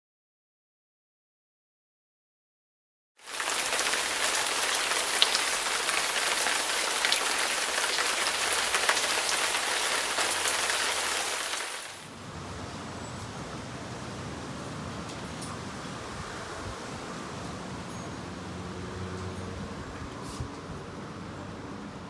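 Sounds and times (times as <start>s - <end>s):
heavy rain: 3.2s - 12.5s
wind outdoors: 3.2s - 22.0s.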